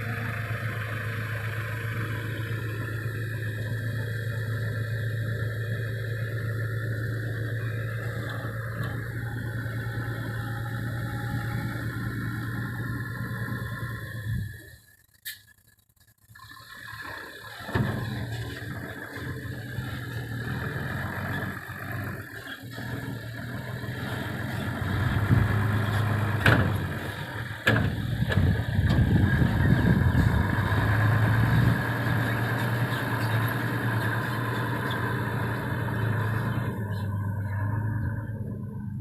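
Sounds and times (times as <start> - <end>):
diesel truck engine idling: 0.0 - 15.2, 16.4 - 39.0.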